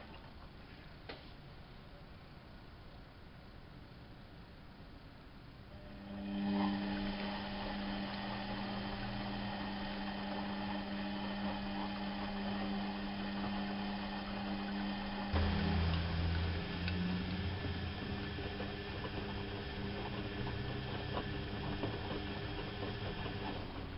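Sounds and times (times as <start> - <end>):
deeper hum: 5.7 - 23.9
washing machine hum: 5.7 - 23.9.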